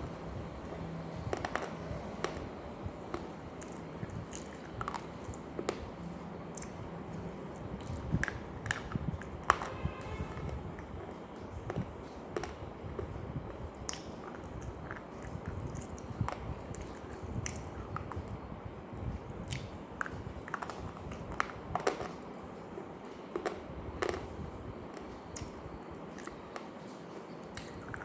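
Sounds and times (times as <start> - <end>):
chewing crunchy food: 3.1 - 5.8, 6.5 - 6.8, 7.6 - 9.6, 13.7 - 18.3, 19.4 - 22.1, 25.0 - 28.0.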